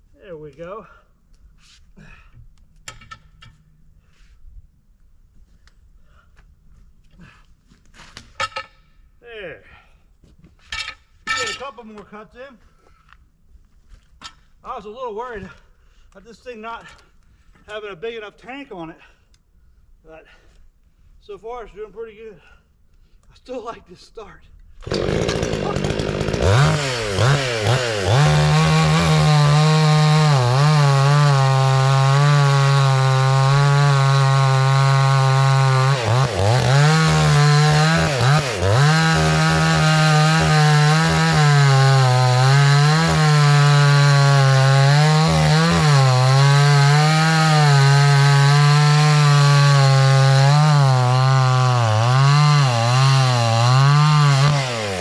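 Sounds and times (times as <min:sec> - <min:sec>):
chainsaw cutting a log: 0:24.8 - 0:55.0.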